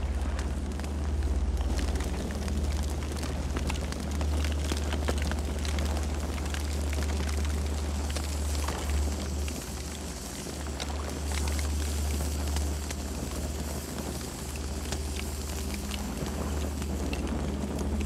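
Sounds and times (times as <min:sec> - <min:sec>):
crackles and pops of burning wood: 0:00.0 - 0:18.0
low rumble of flames: 0:00.0 - 0:18.0.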